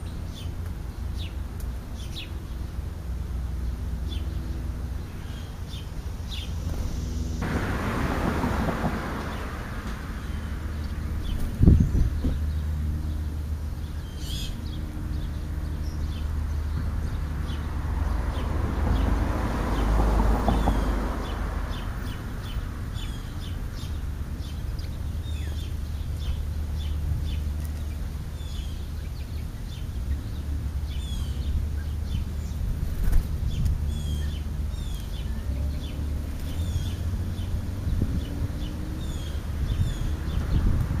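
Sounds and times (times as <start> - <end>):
birds chirping: 0.0 - 2.9, 3.5 - 41.0
steady low rumble: 2.7 - 14.0.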